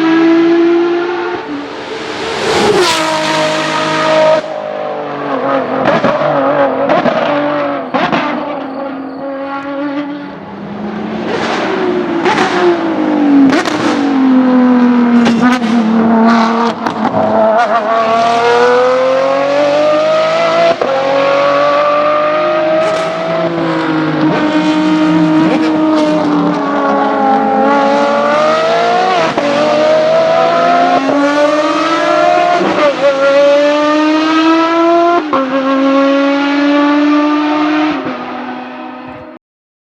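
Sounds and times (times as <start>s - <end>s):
race car engines accelerating: 0.0s - 39.4s
sharp cracks on downshifts: 11.2s - 14.2s.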